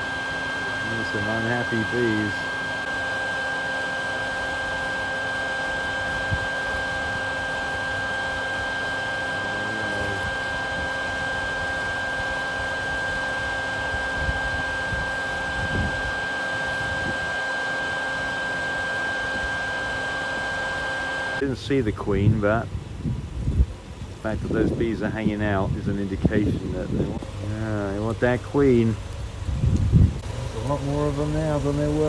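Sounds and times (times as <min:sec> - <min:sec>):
small motor whining: 0:00.0 - 0:21.4.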